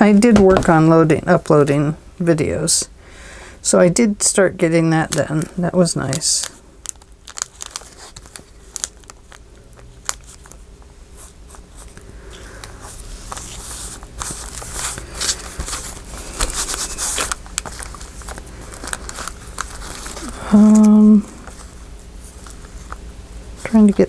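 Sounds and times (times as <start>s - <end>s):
paper rustling and crinkling: 5.0s - 23.0s.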